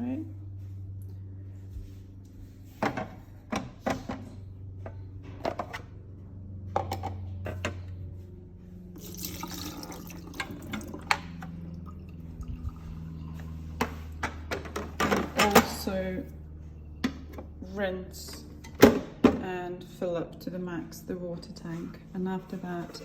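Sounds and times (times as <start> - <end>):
low steady hum: 0.0 - 23.0
water pouring into a sink: 9.0 - 13.8.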